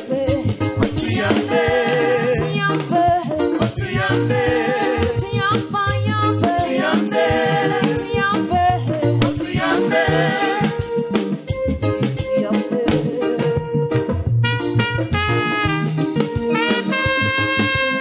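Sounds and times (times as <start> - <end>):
gospel singing voices: 0.0 - 11.0
backing music with bass and percussion: 0.0 - 18.0.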